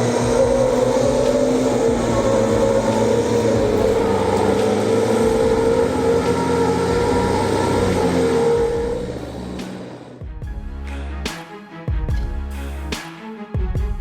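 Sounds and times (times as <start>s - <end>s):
off-road engine running hard: 0.0s - 10.2s.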